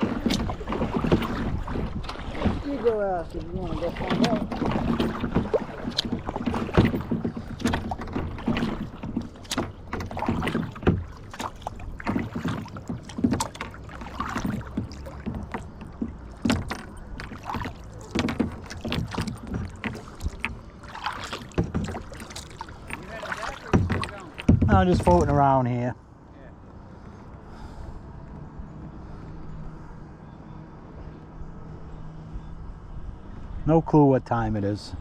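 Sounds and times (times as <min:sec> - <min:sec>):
water splashing around a kayak: 0:00.0 - 0:25.9.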